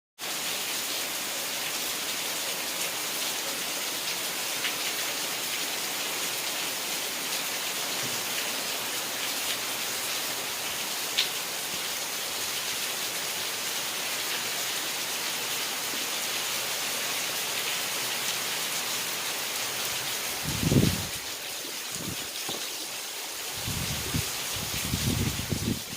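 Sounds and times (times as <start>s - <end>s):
rain falling: 0.2s - 25.9s.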